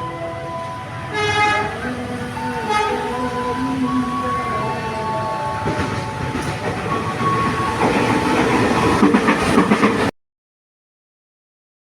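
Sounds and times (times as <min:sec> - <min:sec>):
train wheels clacking on rails: 0:04.0 - 0:10.1.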